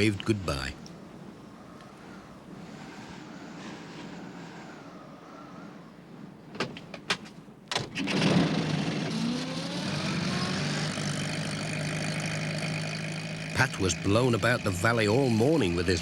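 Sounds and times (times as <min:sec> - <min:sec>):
van engine running: 0:08.0 - 0:16.0.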